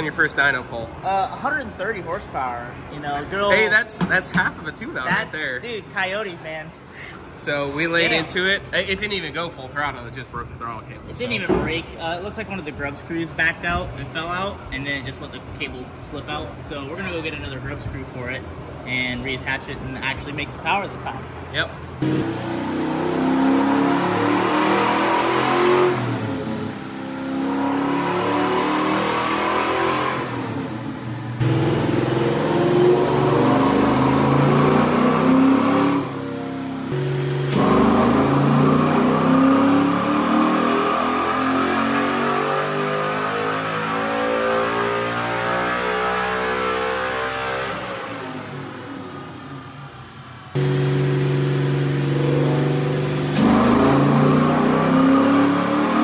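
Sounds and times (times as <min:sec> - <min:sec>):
engine revving under load: 0:22.0 - 0:56.0.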